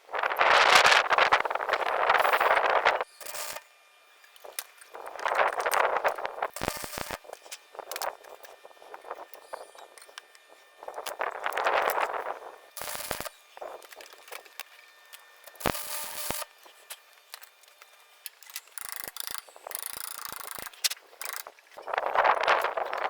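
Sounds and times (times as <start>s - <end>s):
tools clicking and knocking: 18.3s - 21.8s.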